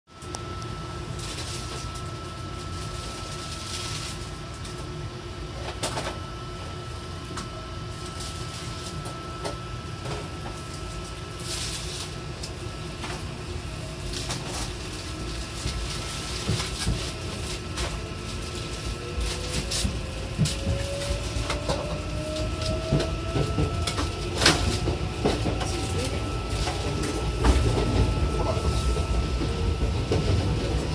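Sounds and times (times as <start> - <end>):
high hum: 0.1 - 30.9
train low rumble: 0.1 - 30.9.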